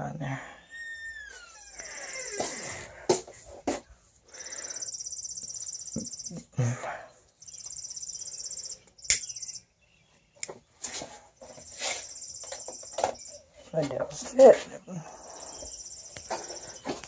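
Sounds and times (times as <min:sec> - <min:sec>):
high pulsing insect trill: 0:04.3 - 0:06.8, 0:07.4 - 0:09.7, 0:11.7 - 0:13.4, 0:15.2 - 0:17.0
sharp click: 0:09.0 - 0:09.5.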